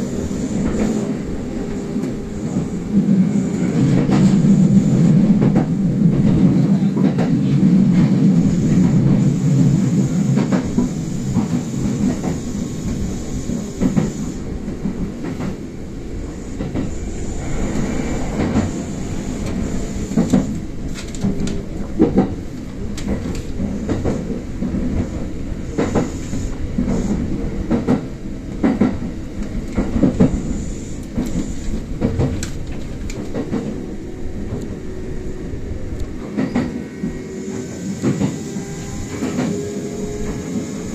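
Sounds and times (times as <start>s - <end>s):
train wheels rumbling on track: 0.0s - 40.9s
wheels clicking over rail joints: 19.5s - 25.0s.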